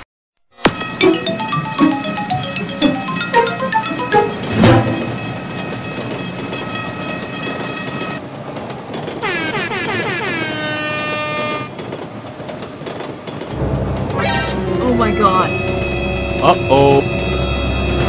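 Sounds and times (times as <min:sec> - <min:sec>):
moving train rumble: 0:00.7 - 0:18.0
train horn: 0:09.2 - 0:11.8, 0:13.6 - 0:18.0.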